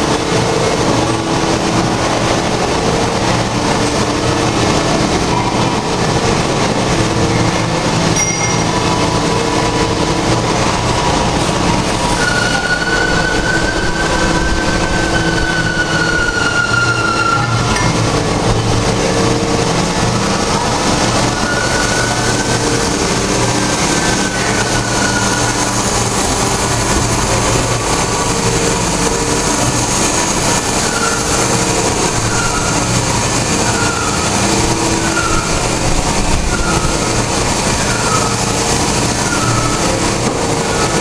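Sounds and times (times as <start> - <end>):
machinery humming: 0.0 - 41.0
short high squeals: 12.1 - 18.0.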